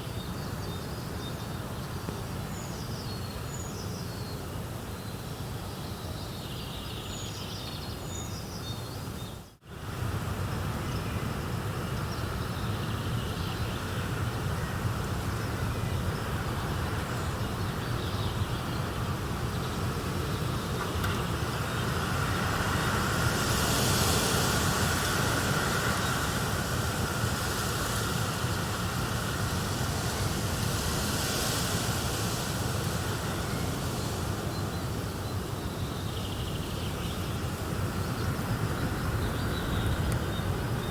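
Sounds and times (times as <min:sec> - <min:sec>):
steady rushing fire ambience: 0:09.7 - 0:40.9.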